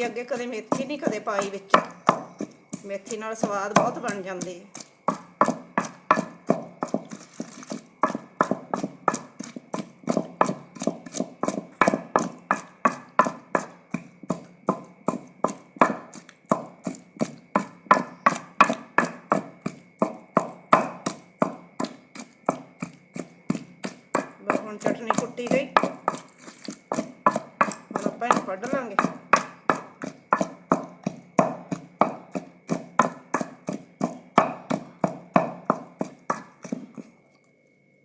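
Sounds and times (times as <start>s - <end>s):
pestle pounding in a mortar: 0.0s - 37.2s.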